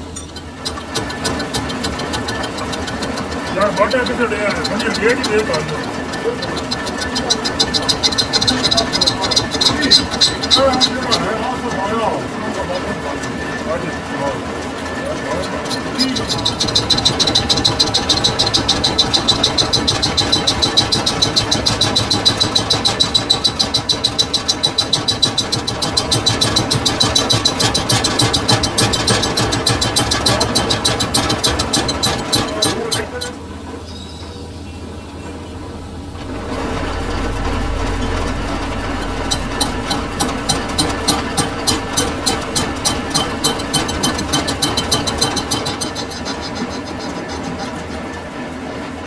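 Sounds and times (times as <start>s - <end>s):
sharp ringing ticks: 0.0s - 11.6s, 15.9s - 33.1s, 35.5s - 46.6s
lathe humming: 33.5s - 46.9s.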